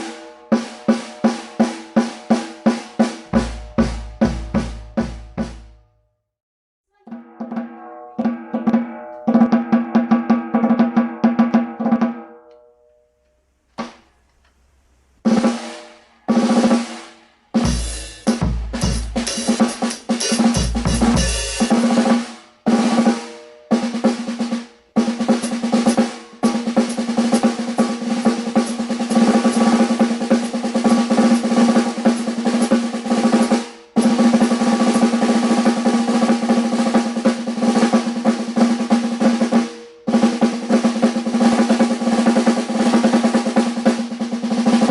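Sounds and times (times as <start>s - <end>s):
snare drum roll: 0.0s - 5.8s, 7.5s - 12.2s, 15.3s - 44.9s
snare drum strokes: 0.0s - 5.8s, 15.3s - 44.9s.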